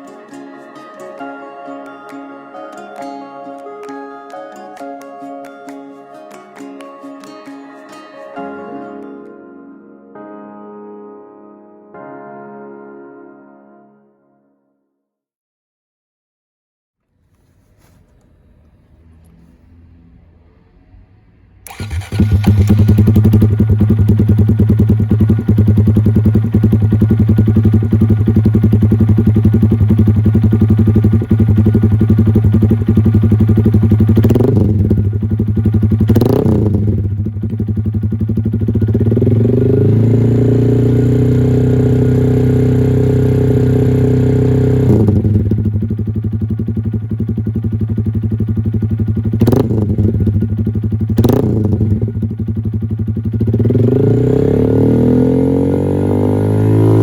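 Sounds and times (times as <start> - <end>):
motorcycle engine revving: 18.3 - 57.0.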